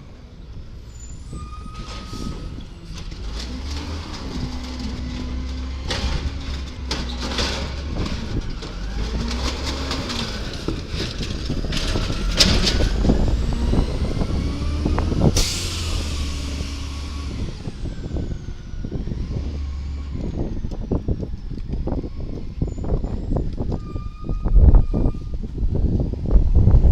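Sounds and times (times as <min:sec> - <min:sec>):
garbage truck engine revving: 0:02.1 - 0:20.8
clanks and knocks: 0:03.0 - 0:13.4.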